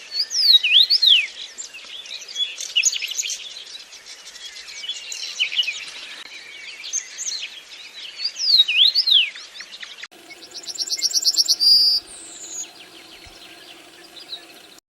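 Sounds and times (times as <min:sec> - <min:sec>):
birds chirping and whistling: 0:10.2 - 0:14.8
fast repeated bird trill: 0:10.2 - 0:14.8.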